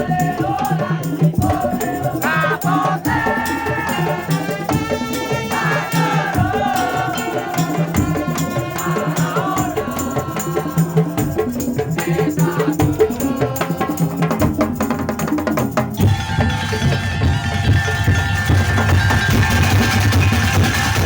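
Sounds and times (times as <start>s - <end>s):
wooden knocks and drums: 15.9s - 21.0s
sliding lead melody: 16.0s - 21.0s.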